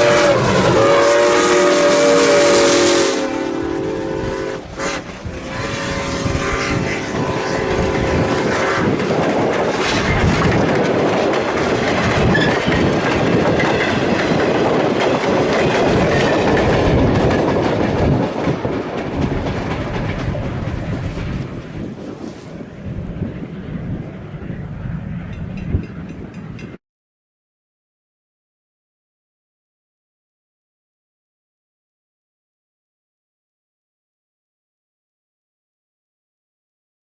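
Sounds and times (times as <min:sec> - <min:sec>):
train whistle: 0:00.0 - 0:09.0
train wheels clattering: 0:00.0 - 0:22.0, 0:25.1 - 0:26.8.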